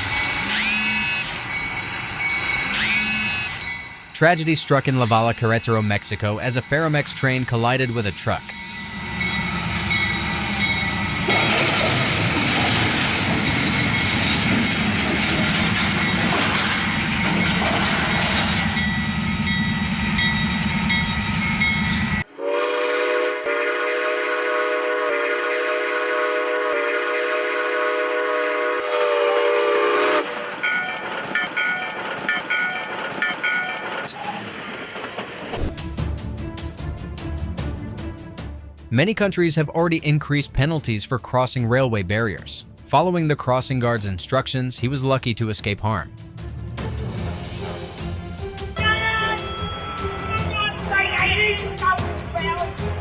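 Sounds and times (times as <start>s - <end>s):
train rumbling: 0.0s - 38.2s, 38.9s - 53.0s
locomotive air horn chord: 0.4s - 1.4s, 2.8s - 3.7s, 22.3s - 30.5s, 48.8s - 52.7s.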